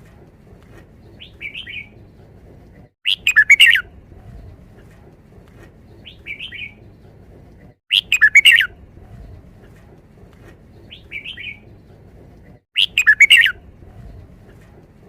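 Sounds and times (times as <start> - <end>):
bird singing whistled notes: 3.0 - 3.9, 6.0 - 6.8, 7.9 - 8.8, 10.9 - 11.6, 12.8 - 14.1.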